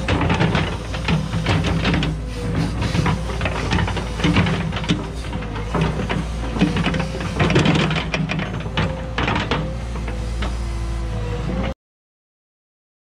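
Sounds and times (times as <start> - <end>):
bucket clanking and scraping rock: 0.0 - 9.7
diesel engine under load: 0.0 - 11.8
hydraulic whine: 0.0 - 11.8.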